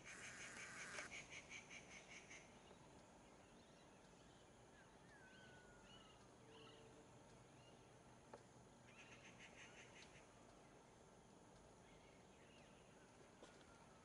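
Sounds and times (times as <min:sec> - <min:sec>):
bird rapid pulsing call: 0:00.0 - 0:02.5
soft bird chirps: 0:01.9 - 0:07.9.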